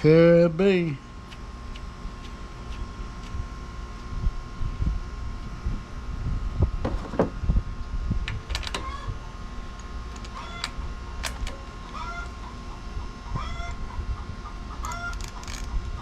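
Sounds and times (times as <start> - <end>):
chickens clucking: 10.3 - 10.7, 11.9 - 16.0.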